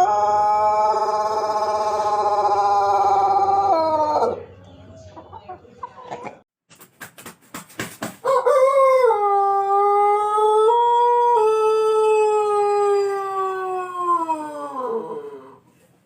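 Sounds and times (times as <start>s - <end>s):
rooster crowing: 0.0s - 4.6s, 8.2s - 15.6s.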